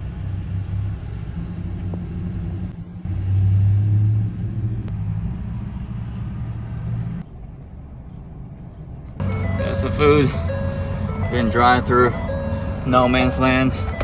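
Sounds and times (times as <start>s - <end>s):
truck engine and road rumble: 0.0s - 14.0s.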